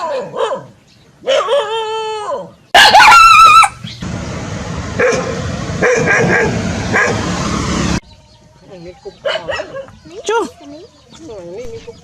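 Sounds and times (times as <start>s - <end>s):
dog barking: 0.0s - 1.8s, 2.8s - 3.7s, 5.0s - 7.2s, 9.2s - 10.0s.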